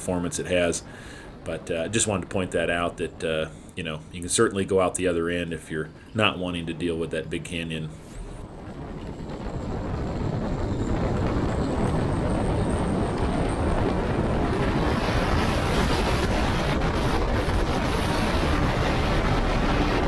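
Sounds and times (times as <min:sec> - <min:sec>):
propeller airplane engine: 0:08.0 - 0:20.0
wind rushing: 0:08.0 - 0:20.0.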